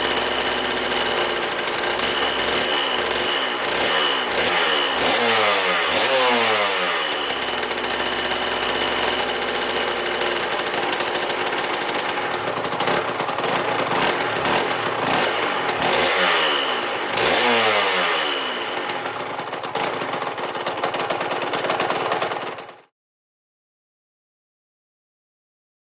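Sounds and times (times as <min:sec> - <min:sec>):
two-stroke motorcycle engine revving: 0:00.0 - 0:22.9.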